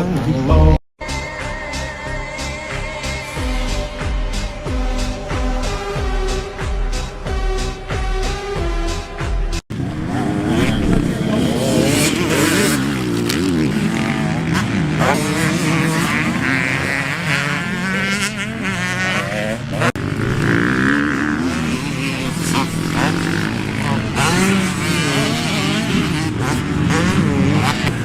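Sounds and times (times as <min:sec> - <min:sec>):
music: 0:00.0 - 0:09.6
dirt bike engines revving: 0:00.0 - 0:28.0.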